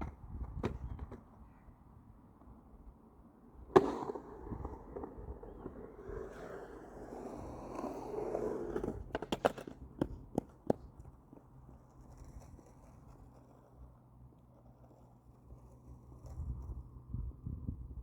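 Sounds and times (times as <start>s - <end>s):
skateboard clacks: 0.0s - 1.4s, 3.5s - 13.8s
skateboard wheels rolling: 0.0s - 18.0s
skateboard landing smack: 3.7s - 4.8s.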